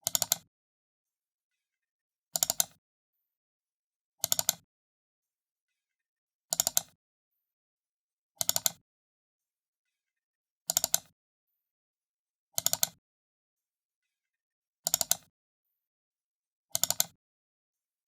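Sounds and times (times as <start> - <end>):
computer mouse double-clicking: 0.0 - 0.5, 2.4 - 2.8, 4.2 - 4.7, 6.5 - 7.0, 8.4 - 8.8, 10.7 - 11.1, 12.6 - 13.0, 14.8 - 15.3, 16.7 - 17.2.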